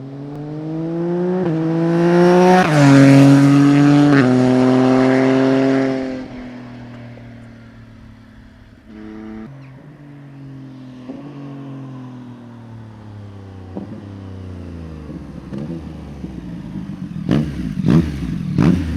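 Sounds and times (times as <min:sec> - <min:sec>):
motorcycle engine winding down: 0:00.4 - 0:18.9.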